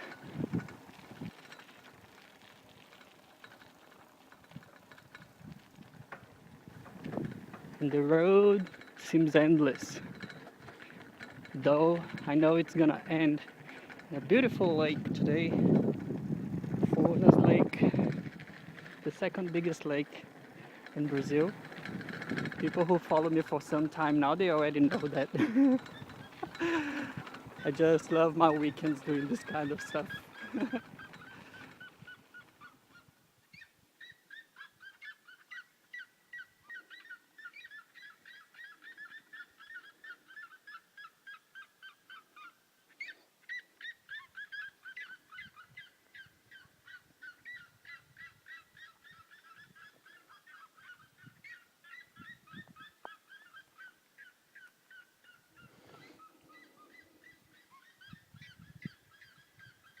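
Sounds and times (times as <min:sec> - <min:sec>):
birds calling harsh notes: 0:20.3 - 1:00.0.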